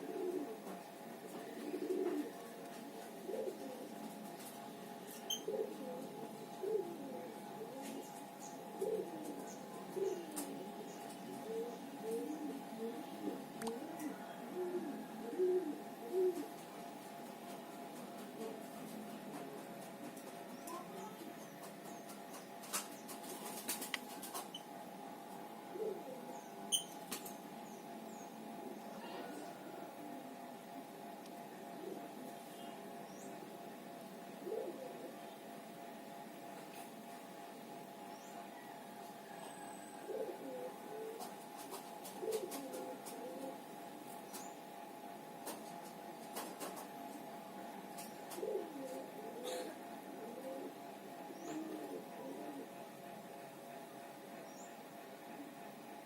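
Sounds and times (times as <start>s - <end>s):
birds cooing: 0.0s - 16.8s, 25.6s - 30.8s, 31.6s - 33.4s, 34.3s - 35.5s, 38.1s - 44.7s, 46.3s - 53.4s
steady hum: 0.0s - 56.0s.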